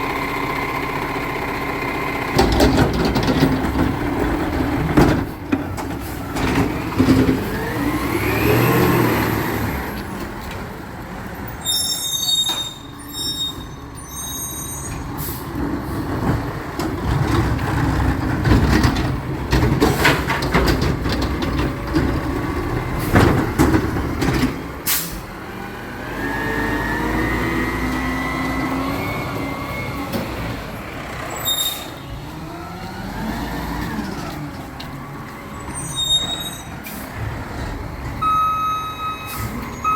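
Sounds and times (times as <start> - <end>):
recycling truck engine running: 0.0 - 11.9
clanks and knocks: 2.3 - 7.5, 16.2 - 24.7.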